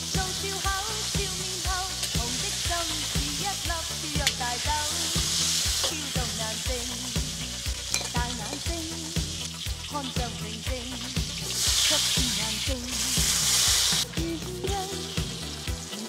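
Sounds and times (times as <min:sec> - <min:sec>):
crabs sizzling in a wok: 0:00.0 - 0:16.0
light background music: 0:00.0 - 0:16.0
metal ladle stirring: 0:07.9 - 0:08.7.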